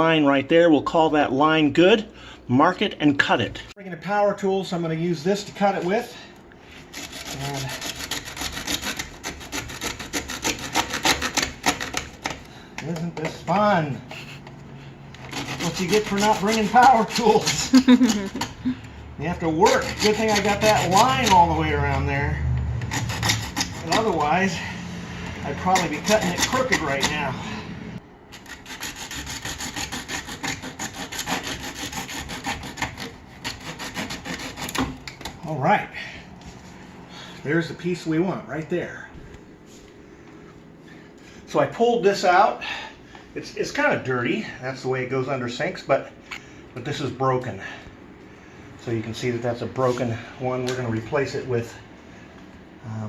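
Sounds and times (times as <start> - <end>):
hand saw cutting plastic pipe: 6.8 - 13.4, 15.2 - 18.6, 19.4 - 22.1, 22.8 - 27.3, 28.3 - 35.3.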